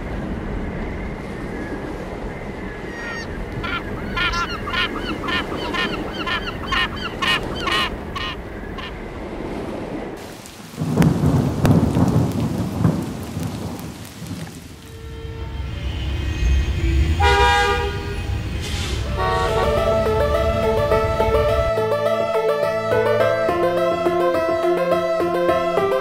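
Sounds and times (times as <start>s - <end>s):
harsh repeated bird calls: 2.6s - 9.0s
loud deep rumble: 10.8s - 23.1s
steady wash of noise: 14.8s - 25.6s.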